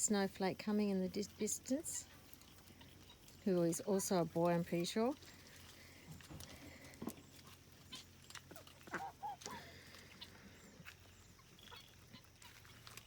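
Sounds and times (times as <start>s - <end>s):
light clicks and rustles: 2.1s - 10.2s
faint poultry calls: 5.2s - 13.0s.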